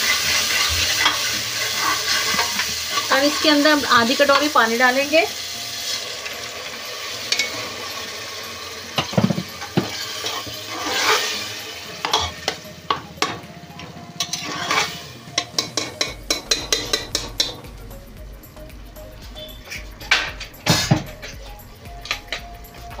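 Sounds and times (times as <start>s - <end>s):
metal spatula scraping pot: 0.0s - 4.6s, 9.0s - 12.6s, 14.2s - 17.7s
water sizzling in hot pot: 0.0s - 18.3s, 19.0s - 23.0s.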